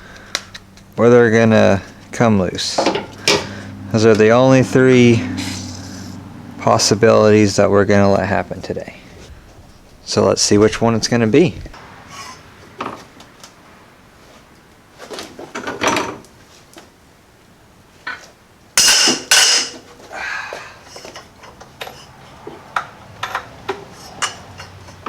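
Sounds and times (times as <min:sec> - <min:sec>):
metal scraping clanks: 0:00.3 - 0:07.0, 0:20.8 - 0:25.0
ratchet clanking on bolts: 0:02.7 - 0:04.3, 0:21.0 - 0:25.0.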